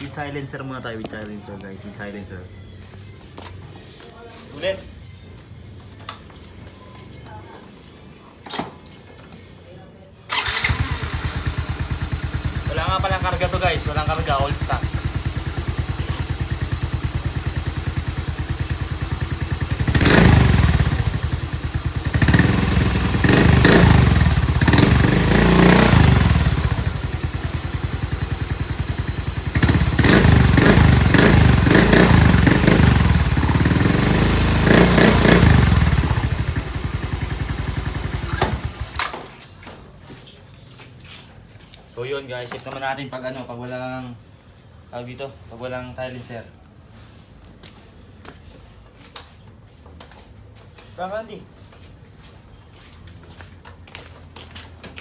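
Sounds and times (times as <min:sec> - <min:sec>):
scooter engine idling and revving: 0:10.3 - 0:39.4.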